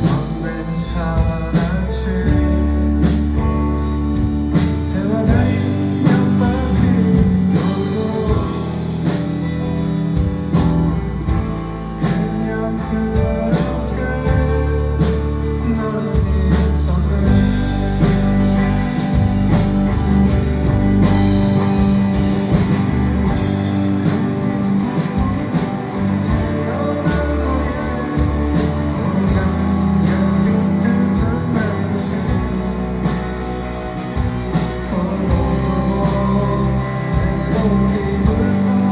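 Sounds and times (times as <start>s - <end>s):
person singing: 0.0s - 3.8s, 4.5s - 9.8s, 11.3s - 21.8s, 23.3s - 38.9s
rock band playing: 0.0s - 38.9s
drumbeat: 1.2s - 12.5s, 16.2s - 30.5s.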